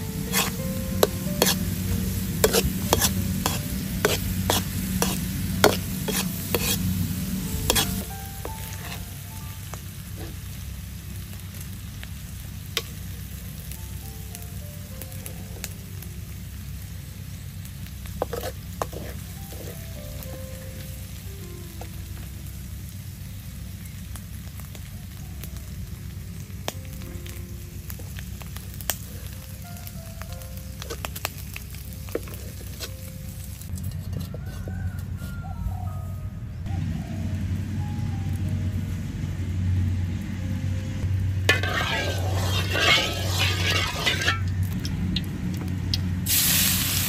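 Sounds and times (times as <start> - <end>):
oil sizzling in a wok: 0.0 - 35.4, 41.0 - 47.0
metal ladle clinking against wok: 41.5 - 44.8.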